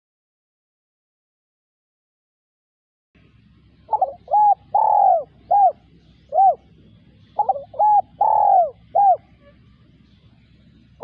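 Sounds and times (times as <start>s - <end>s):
dove cooing: 3.8s - 10.0s.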